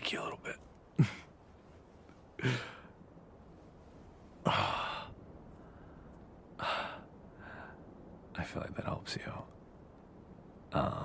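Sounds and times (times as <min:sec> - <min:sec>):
man sighing breathily: 0:02.4 - 0:02.9, 0:04.4 - 0:06.0.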